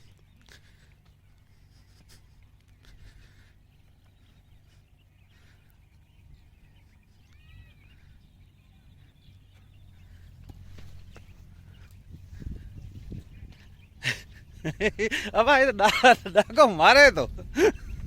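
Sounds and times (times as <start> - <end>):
bird chirping: 0.0 - 18.0
low rumble: 2.4 - 15.3.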